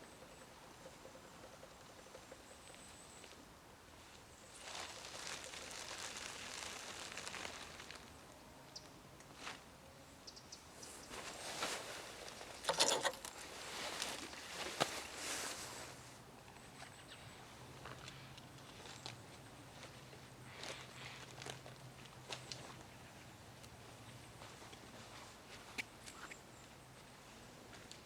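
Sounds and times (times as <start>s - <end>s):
camping gear rustling: 4.2s - 8.2s, 10.8s - 16.3s.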